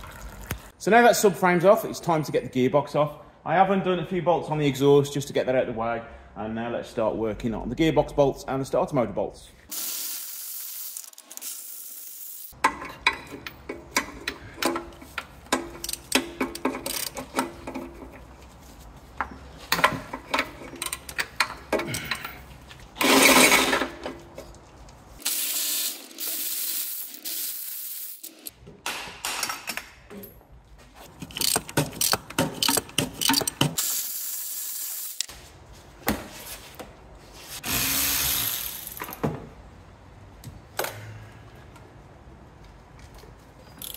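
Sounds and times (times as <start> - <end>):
ratchet clicking: 15.8 - 17.4.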